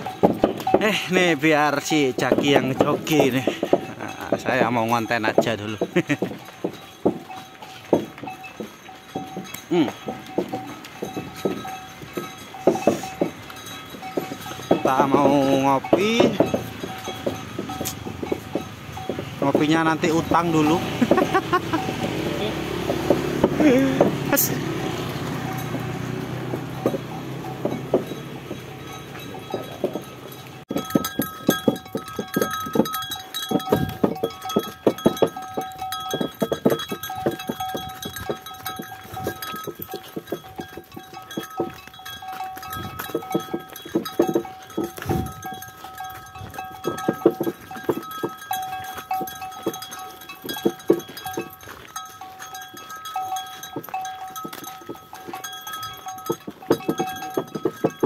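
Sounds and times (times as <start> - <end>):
cart knocking: 0.0 - 58.0
cattle bells jingling: 0.0 - 58.0
hooves clattering: 0.0 - 58.0.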